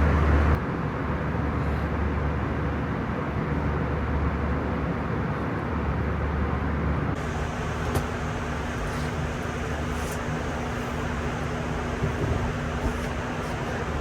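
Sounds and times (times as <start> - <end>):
airliner cabin engine roar: 7.1 - 14.0
steady hum: 7.2 - 14.0.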